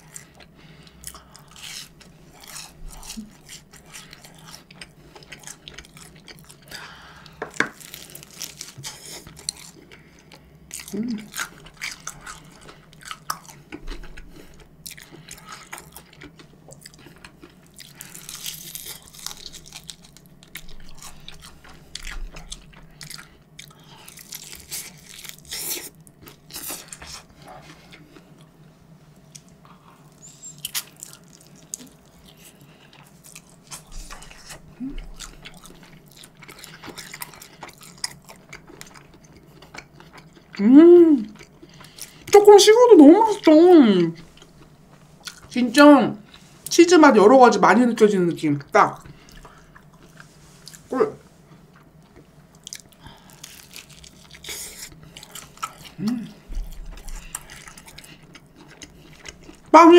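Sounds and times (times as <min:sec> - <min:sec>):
crunchy bites and chewing: 0:00.0 - 0:28.5, 0:29.3 - 0:40.6, 0:51.8 - 0:59.7.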